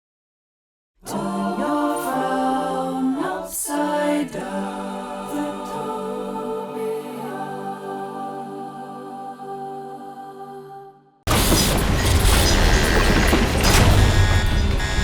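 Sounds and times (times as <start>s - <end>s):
voices singing chords in harmony: 1.0s - 11.2s.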